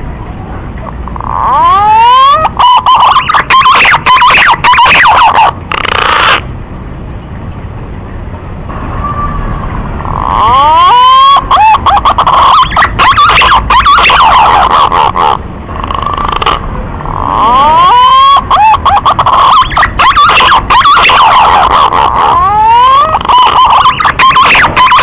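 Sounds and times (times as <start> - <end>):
pigeon song played back: 1.2 - 6.4, 10.2 - 15.4, 17.4 - 25.0.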